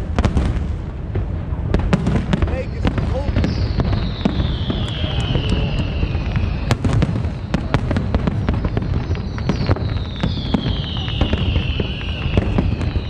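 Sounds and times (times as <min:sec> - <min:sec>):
firework bangs and crackling pops: 0:00.0 - 0:13.0
low rumble of booms: 0:00.0 - 0:13.0
high descending whistle: 0:03.5 - 0:07.6.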